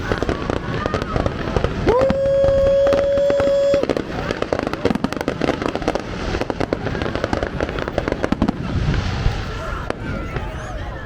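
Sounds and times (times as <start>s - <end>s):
fireworks popping and banging: 0.0s - 10.9s
whistle-like tone: 1.9s - 3.8s.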